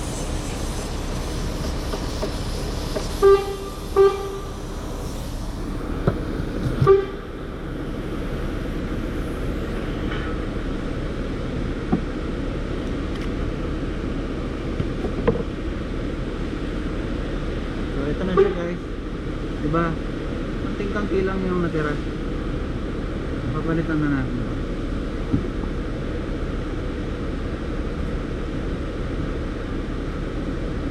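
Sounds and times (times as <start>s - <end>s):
background rumble: 0.0s - 18.1s
vehicle horn toots: 3.2s - 4.5s, 6.8s - 7.3s, 18.3s - 18.6s.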